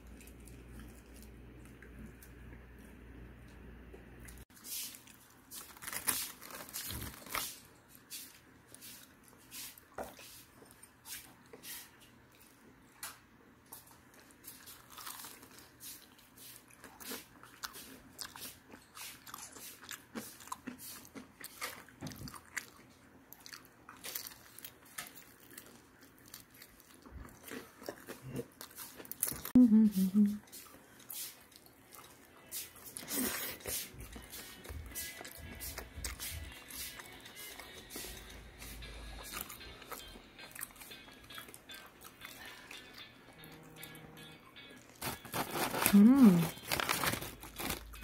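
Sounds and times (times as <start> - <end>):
chewing: 0.0 - 2.9, 8.7 - 29.6, 30.4 - 44.0
crisp crunches of fried batter: 4.8 - 7.7, 45.0 - 48.0.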